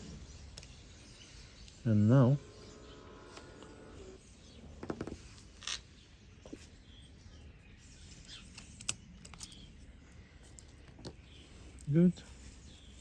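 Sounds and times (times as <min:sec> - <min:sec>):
small tools clicking and tapping: 0:08.2 - 0:09.8.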